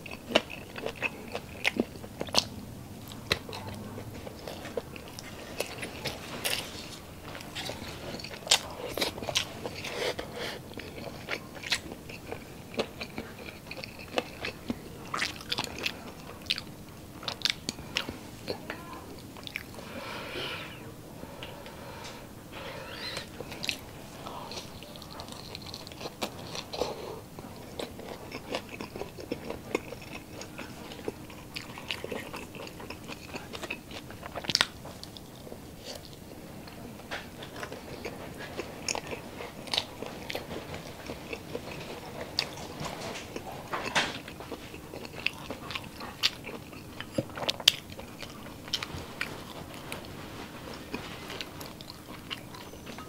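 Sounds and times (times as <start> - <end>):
crunchy biting and chewing: 0.0 - 18.1, 22.6 - 36.2.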